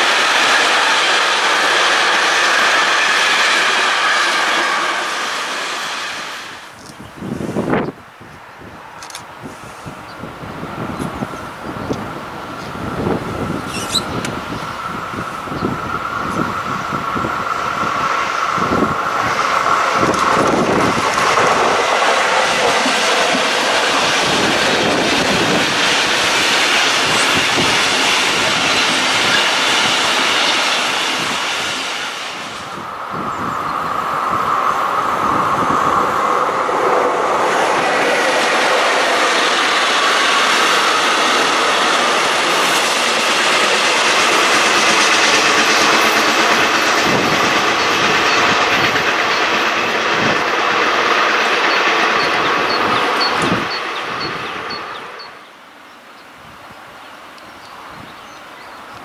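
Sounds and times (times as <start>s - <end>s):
freight train wheels rumbling on rail: 0.0s - 59.0s
clickety-clack over rail joints: 18.5s - 31.4s, 37.9s - 55.3s.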